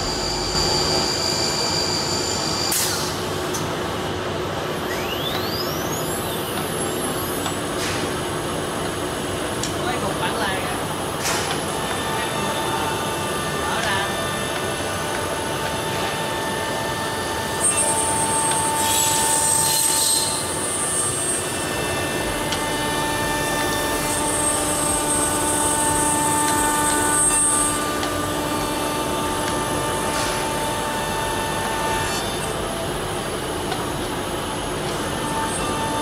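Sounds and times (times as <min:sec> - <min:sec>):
high whine: 0:00.0 - 0:36.0
machine hum: 0:00.0 - 0:36.0
router cutting noise: 0:11.6 - 0:36.0.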